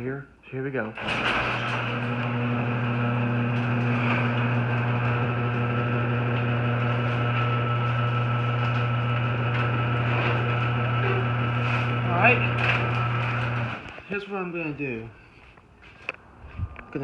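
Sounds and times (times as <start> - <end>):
garage door opener motor humming: 1.0 - 13.9.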